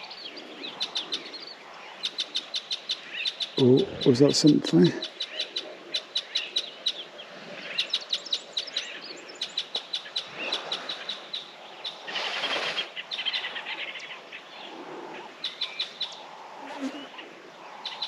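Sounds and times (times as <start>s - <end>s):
birds chirping sharply: 2.0s - 5.6s.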